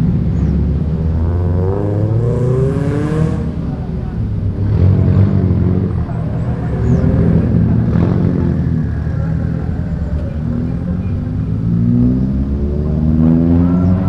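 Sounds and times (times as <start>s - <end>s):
car accelerating: 0.0s - 14.0s
car engines rumbling: 0.0s - 14.0s.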